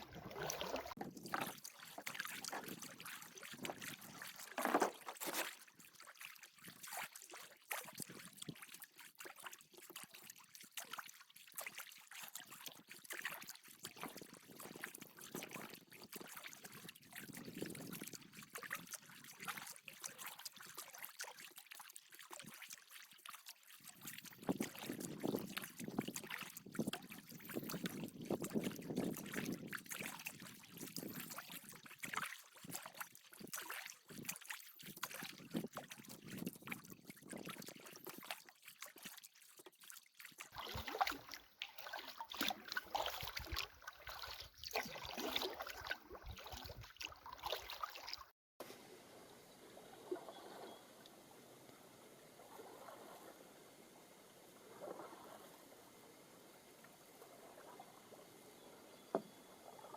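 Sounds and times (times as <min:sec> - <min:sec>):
paddle strokes: 0:00.0 - 0:07.0, 0:37.5 - 0:48.8
water trickling and splashing: 0:00.0 - 0:48.4.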